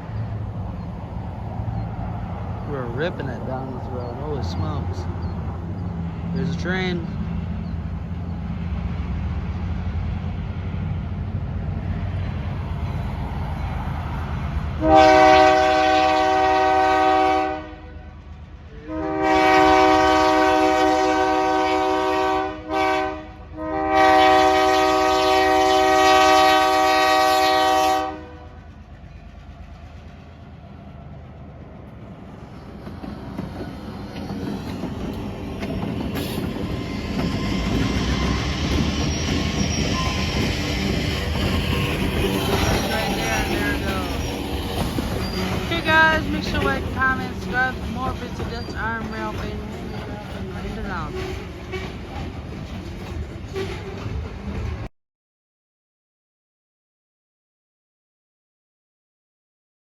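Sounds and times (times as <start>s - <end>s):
locomotive chime horn blasts: 14.8s - 18.1s, 18.9s - 28.6s
diesel engine rumble: 40.3s - 53.4s.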